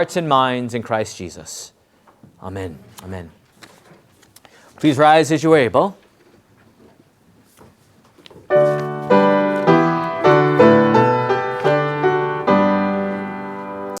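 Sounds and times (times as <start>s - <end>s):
faint rustles and clicks: 2.0s - 4.9s, 5.8s - 10.3s
slow piano chords: 8.5s - 14.0s.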